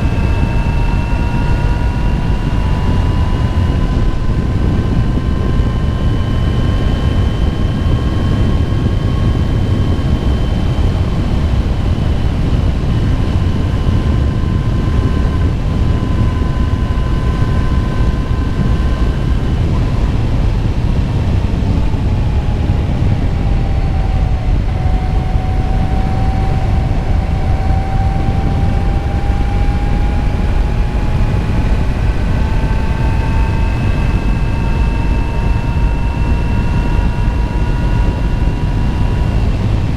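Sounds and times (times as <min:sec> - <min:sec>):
motorcycle whine: 0:00.0 - 0:39.9
wind rumble on microphone: 0:00.0 - 0:39.9.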